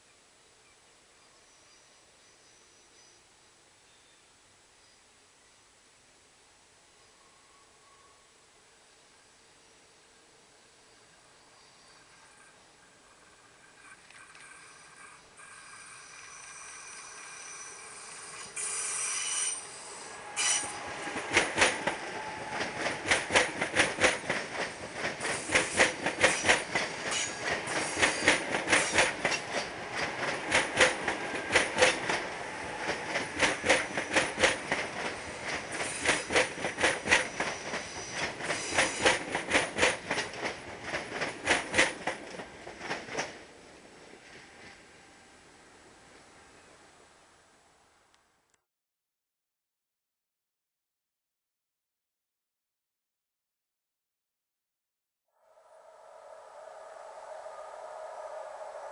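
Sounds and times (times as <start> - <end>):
train high whine: 7.0 - 48.2, 55.3 - 58.9
train wheels clattering over rail joints: 20.4 - 43.5.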